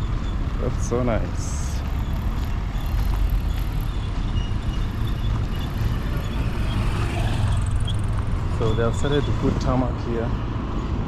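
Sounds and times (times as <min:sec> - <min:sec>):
road vehicle rumble: 0:00.0 - 0:11.0.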